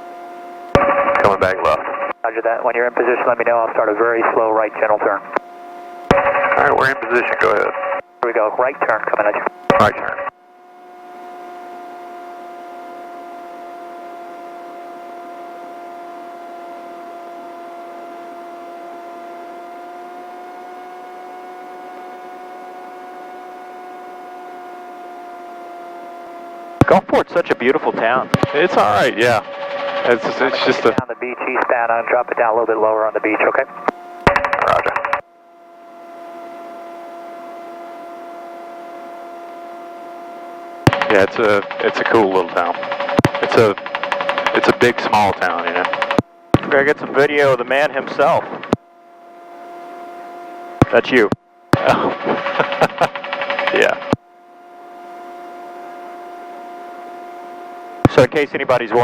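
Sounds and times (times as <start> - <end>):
aircraft drone from cockpit: 0.0 - 59.0
steady pitched whine: 0.6 - 11.7, 26.8 - 56.1
radio hiss: 0.8 - 5.4, 6.1 - 10.3, 26.8 - 35.2, 40.9 - 48.8, 50.8 - 54.2, 58.1 - 59.0
aircraft cabin hum: 26.8 - 32.1, 40.9 - 48.8, 50.8 - 54.2.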